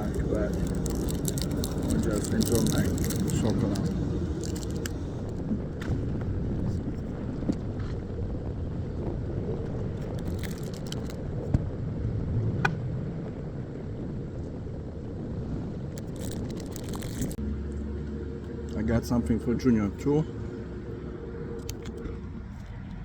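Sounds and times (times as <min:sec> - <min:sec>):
road traffic rumble: 0:00.0 - 0:23.0
rustles: 0:15.6 - 0:17.4.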